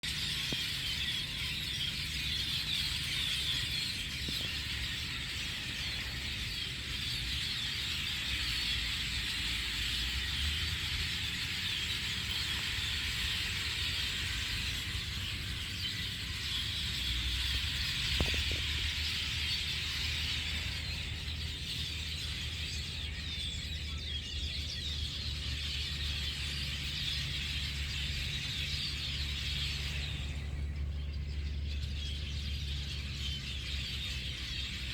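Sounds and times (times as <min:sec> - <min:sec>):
flock of birds chirping: 0:00.0 - 0:34.9.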